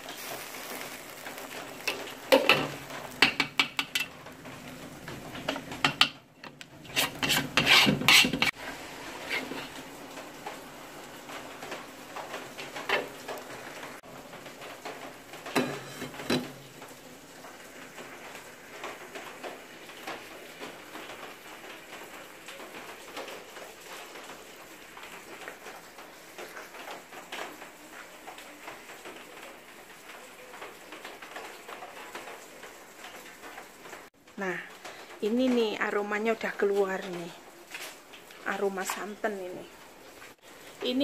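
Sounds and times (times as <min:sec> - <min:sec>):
rain on a metal roof: 0:00.0 - 0:41.0
metal pot lid clanks: 0:15.6 - 0:16.5.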